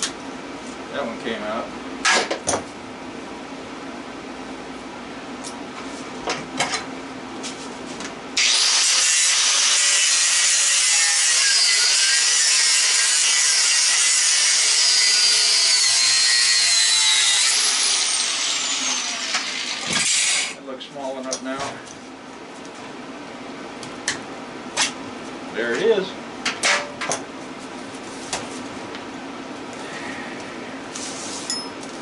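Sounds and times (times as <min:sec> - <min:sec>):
power grinder grinding metal: 0:08.4 - 0:20.6.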